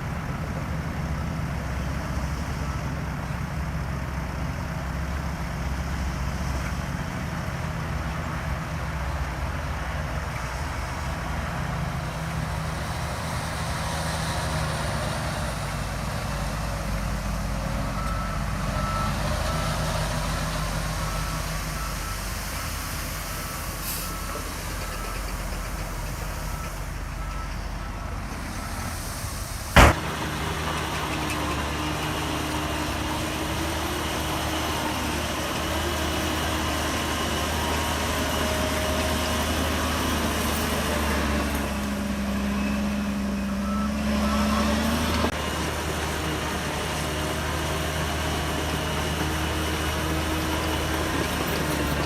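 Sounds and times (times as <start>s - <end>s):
heavy diesel engine under load: 0.0s - 52.0s
reversing alarm beeps: 42.3s - 45.2s.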